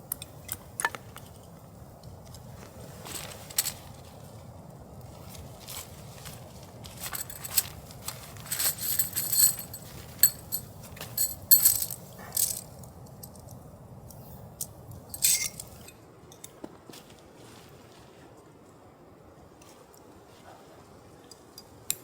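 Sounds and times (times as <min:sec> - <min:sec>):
small metal objects clinking: 0:06.9 - 0:13.6, 0:15.1 - 0:16.0.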